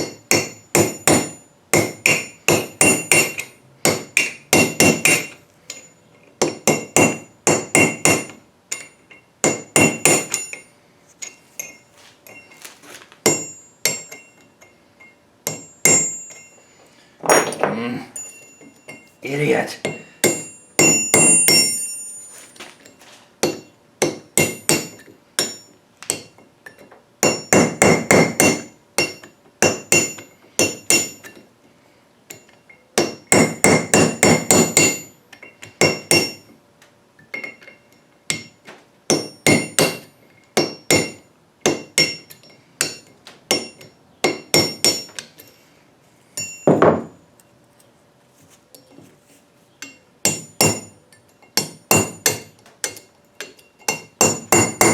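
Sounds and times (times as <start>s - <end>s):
hammer tapping punch on steel: 0.0s - 10.7s, 19.8s - 22.0s, 38.3s - 45.3s, 49.8s - 54.9s.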